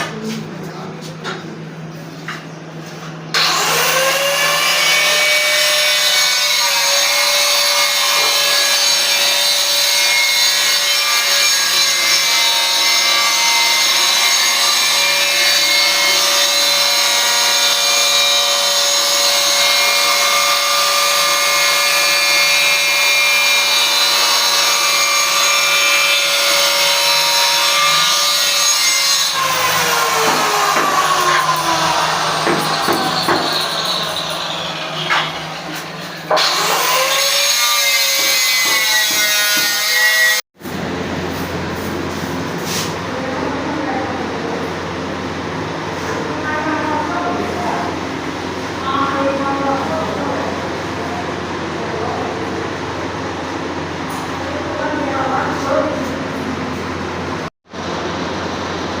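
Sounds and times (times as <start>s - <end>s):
power tool grinding: 3.3s - 40.5s.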